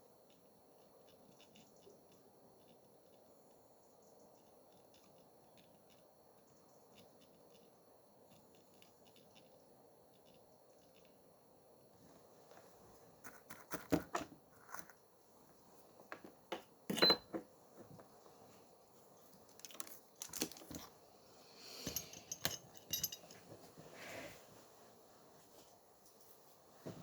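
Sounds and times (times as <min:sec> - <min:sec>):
small tools clicking and tapping: 0:19.4 - 0:20.9, 0:21.8 - 0:23.4.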